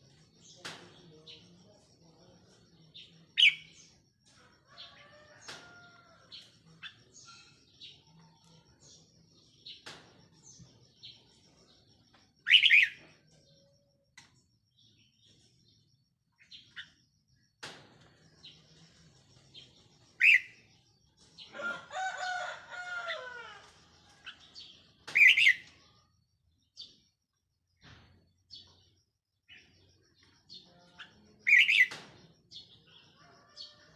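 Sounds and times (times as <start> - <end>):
faint bird chirps: 0.0 - 21.7, 23.6 - 33.9
bulbul calling: 12.4 - 13.1, 25.1 - 25.8, 31.0 - 32.0.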